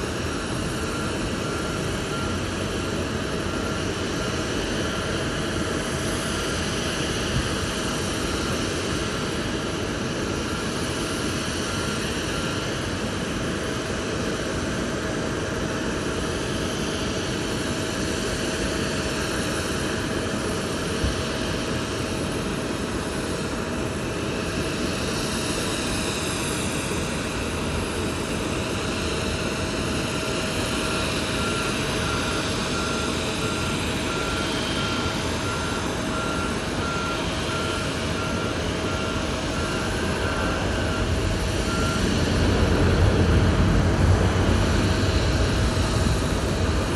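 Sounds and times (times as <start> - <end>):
reversing alarm beeps: 0.0 - 17.3, 28.8 - 42.7
jet aircraft noise: 0.0 - 46.9.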